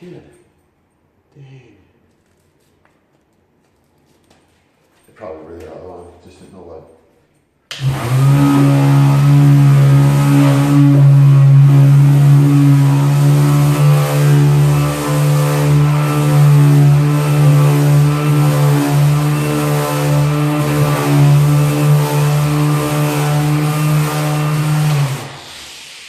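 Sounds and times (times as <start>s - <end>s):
orbit sander sanding wood: 7.8s - 25.6s.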